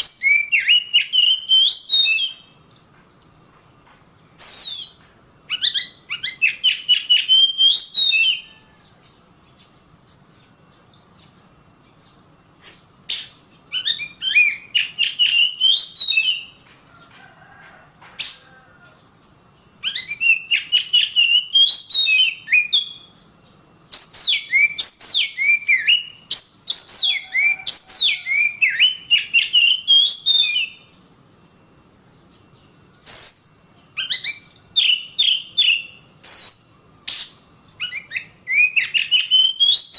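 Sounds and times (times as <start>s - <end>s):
bird singing rapid whistles: 0.0s - 2.9s, 4.4s - 9.0s, 13.1s - 16.6s, 19.8s - 23.2s, 23.9s - 31.0s, 33.0s - 39.9s.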